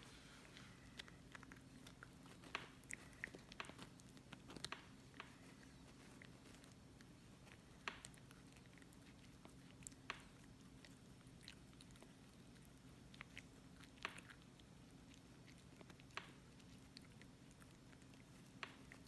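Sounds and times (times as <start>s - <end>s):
low steady hum: 0.0s - 19.0s
puppy teeth crunching chew: 0.4s - 19.0s.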